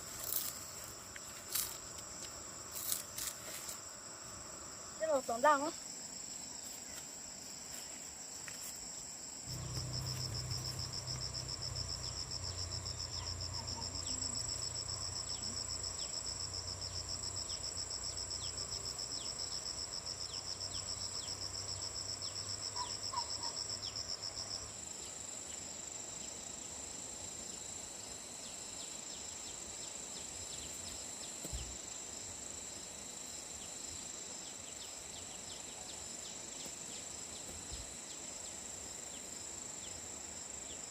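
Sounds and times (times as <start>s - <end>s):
insects high-pitched drone: 0.0s - 40.9s
rapidly pulsing insect call: 0.0s - 40.9s
low hum: 9.5s - 15.8s.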